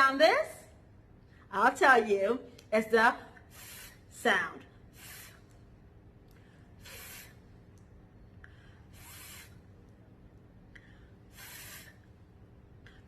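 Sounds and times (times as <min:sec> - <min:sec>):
faint steady hum: 0:00.0 - 0:13.0
woman making breathy hiss sound: 0:03.5 - 0:04.0, 0:04.9 - 0:05.5, 0:06.8 - 0:07.4, 0:08.9 - 0:09.7, 0:11.3 - 0:12.1.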